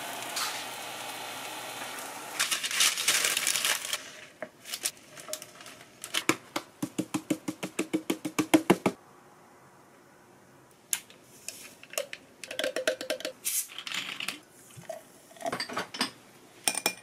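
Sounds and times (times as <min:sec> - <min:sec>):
pancake sizzling in oiled pan: 0:00.0 - 0:02.4.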